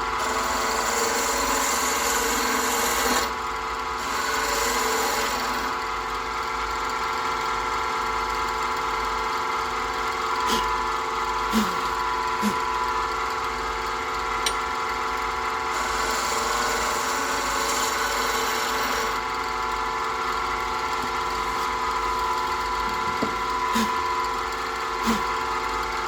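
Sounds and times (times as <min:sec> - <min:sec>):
wood lathe running: 0:00.0 - 0:07.4, 0:09.6 - 0:26.0
hissing of wood being turned: 0:23.7 - 0:24.0.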